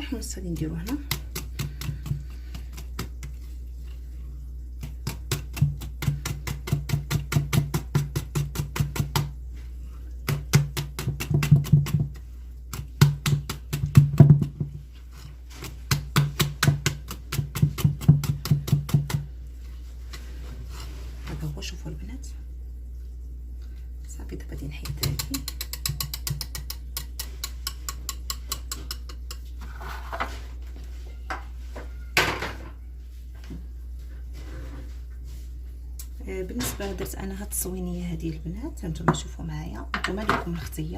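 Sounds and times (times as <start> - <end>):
whisk beating batter in bowl: 0.0 - 9.4, 24.6 - 29.7.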